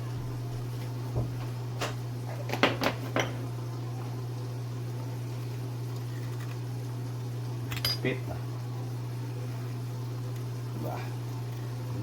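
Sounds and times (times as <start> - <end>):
kitchenware clinking: 2.3 - 3.5, 7.7 - 8.1.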